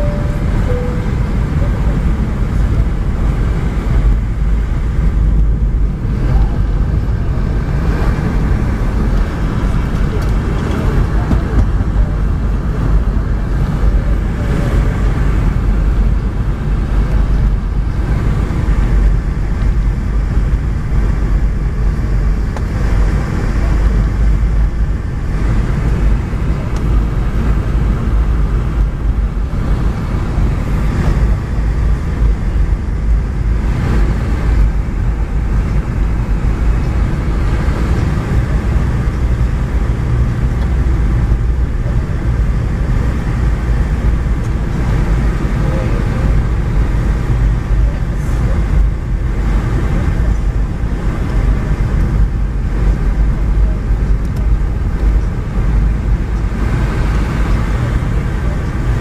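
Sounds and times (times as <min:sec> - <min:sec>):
jet engines rumbling in cabin: 0:00.0 - 0:59.0.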